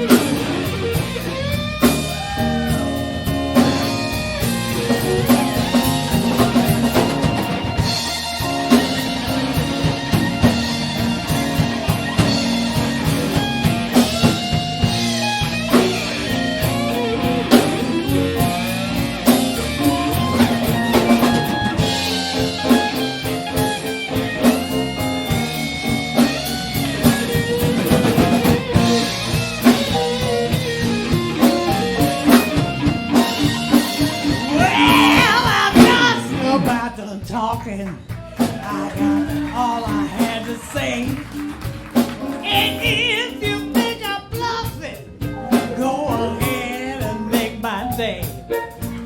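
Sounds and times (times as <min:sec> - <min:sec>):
lead guitar with bent notes: 0:00.0 - 0:37.0
bass: 0:00.0 - 0:49.0
drum kit: 0:00.0 - 0:49.0.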